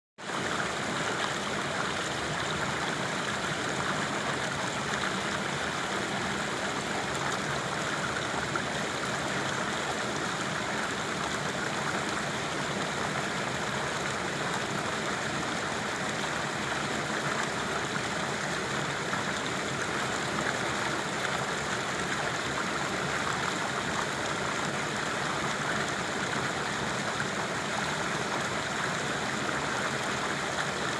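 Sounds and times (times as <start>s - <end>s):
water rushing: 0.2s - 30.9s.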